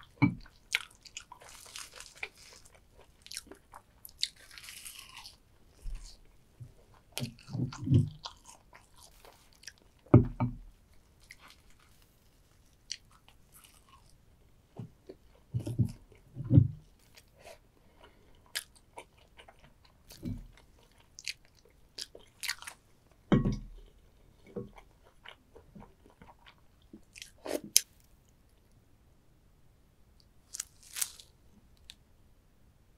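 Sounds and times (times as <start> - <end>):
crab shell crunching: 0.0 - 6.2, 30.5 - 32.0
chewing: 0.0 - 10.1, 10.9 - 16.3, 16.9 - 22.9, 23.8 - 27.9.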